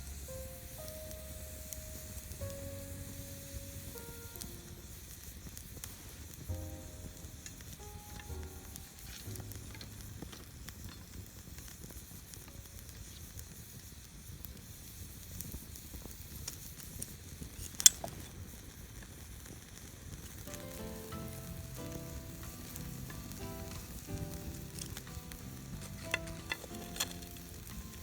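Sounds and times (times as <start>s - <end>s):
soft jazz music: 0.0s - 11.6s, 20.3s - 28.0s
campfire crackling and popping: 0.0s - 28.0s.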